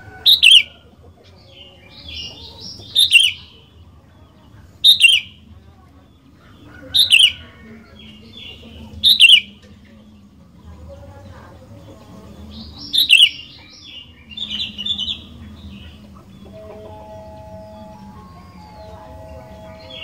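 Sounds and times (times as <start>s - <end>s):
bird chattering: 0.2s - 0.8s, 1.5s - 3.7s, 4.6s - 5.4s, 6.8s - 7.5s, 8.4s - 9.5s, 12.5s - 20.0s
bird whistling phrases: 2.9s - 3.4s, 12.9s - 13.4s.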